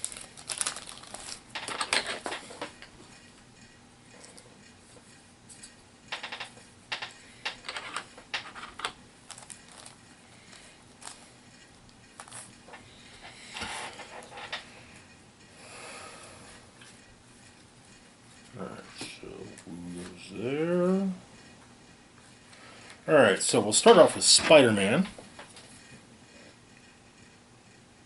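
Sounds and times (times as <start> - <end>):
packaging rustling: 0.0 - 2.4, 9.3 - 11.3.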